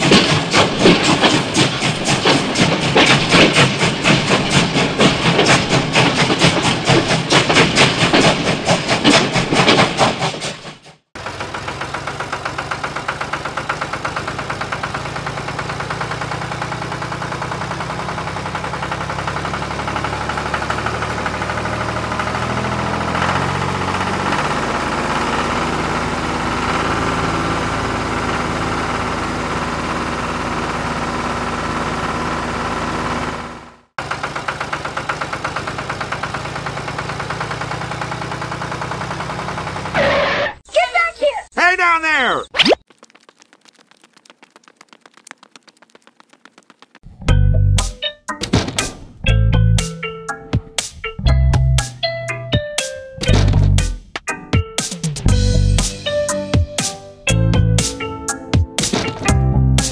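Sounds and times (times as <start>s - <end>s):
tractor engine chugging: 0.0s - 41.1s.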